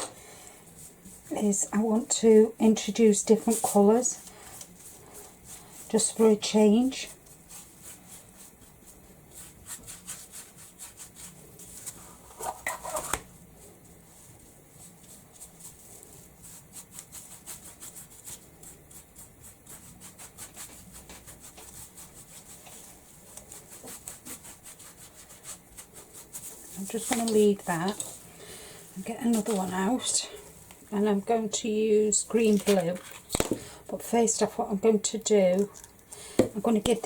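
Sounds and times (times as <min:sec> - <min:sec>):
paintbrush scrubbing on wood: 0:03.0 - 0:12.6, 0:14.1 - 0:33.2.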